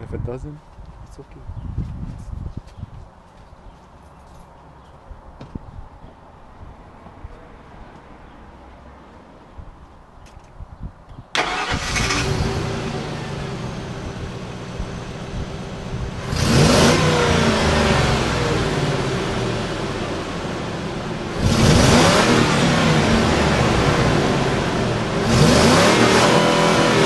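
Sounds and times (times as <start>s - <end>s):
engine cranking: 11.4s - 13.0s
engine running and revving: 11.4s - 27.0s.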